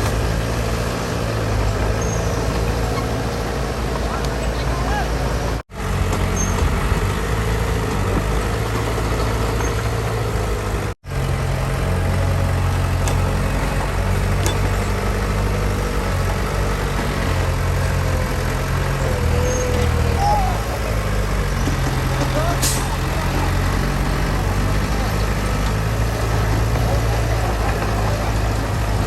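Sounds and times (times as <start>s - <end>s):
heavy diesel engine droning: 0.0s - 29.0s.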